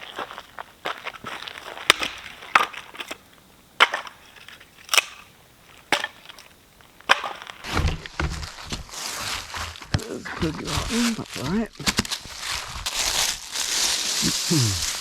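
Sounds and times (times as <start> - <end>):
firewood chopping: 1.8 - 3.2, 3.8 - 4.2, 5.9 - 6.3, 7.1 - 8.8.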